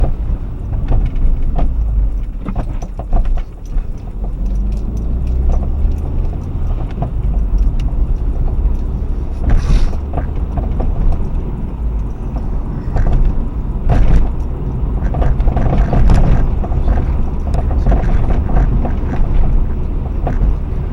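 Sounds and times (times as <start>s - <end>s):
car road rumble: 0.0s - 20.9s
suspension knocks: 0.0s - 20.9s.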